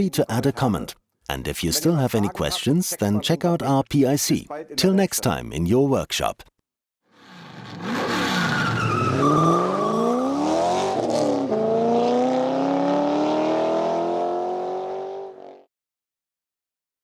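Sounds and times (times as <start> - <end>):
car engine accelerating hard: 7.2 - 15.6.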